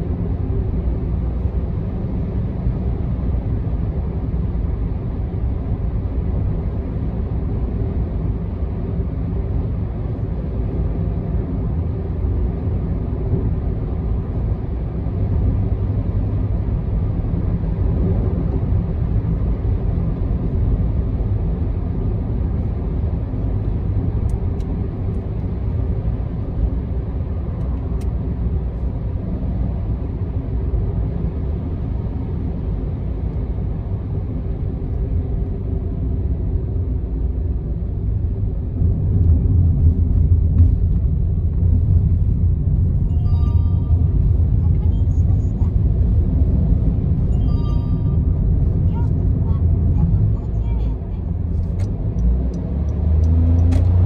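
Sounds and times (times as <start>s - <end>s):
tyre and engine rumble: 30.4s - 54.0s.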